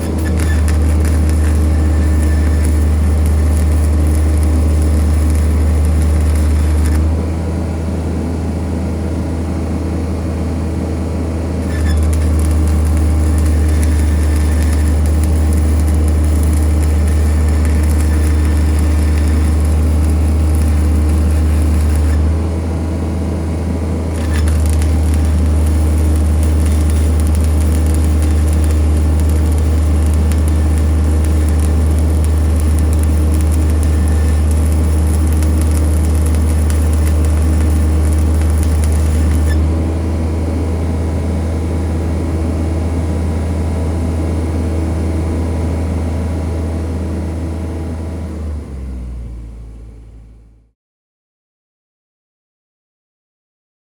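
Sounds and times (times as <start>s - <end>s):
diesel engine humming: 10.8s - 41.4s.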